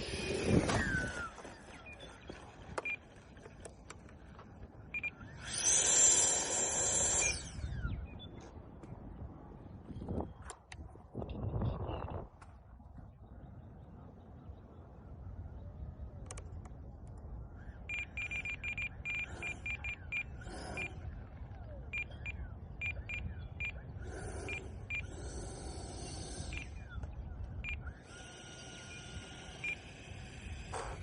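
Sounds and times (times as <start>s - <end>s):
wind rumble on microphone: 0.0s - 3.5s, 6.6s - 28.2s
steady electronic whine: 0.0s - 8.8s
short electronic beeps: 4.9s - 5.5s, 17.9s - 21.1s, 21.9s - 23.9s, 27.5s - 28.0s, 28.9s - 29.8s.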